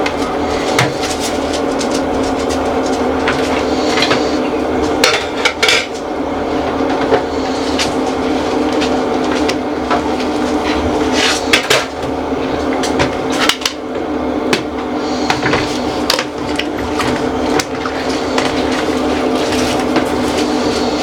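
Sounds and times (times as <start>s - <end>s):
dishes clattering and knocking: 0.0s - 6.0s
steady hum: 0.0s - 21.0s.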